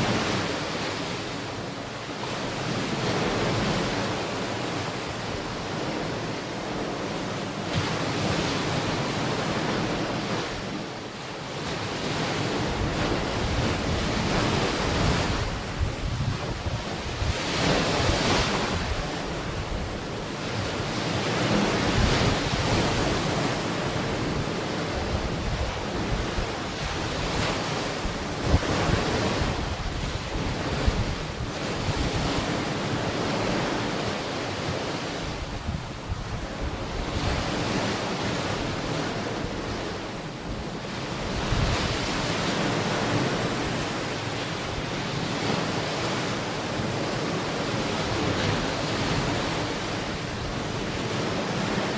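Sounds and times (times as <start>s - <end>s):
ocean waves breaking on beach: 0.0s - 51.9s
wind buffeting microphone: 12.0s - 34.0s, 34.6s - 44.0s.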